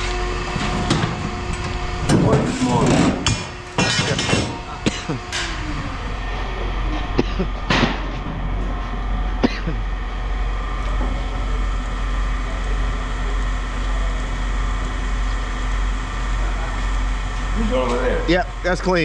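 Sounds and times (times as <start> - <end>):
steady machinery hum: 0.0 - 19.0.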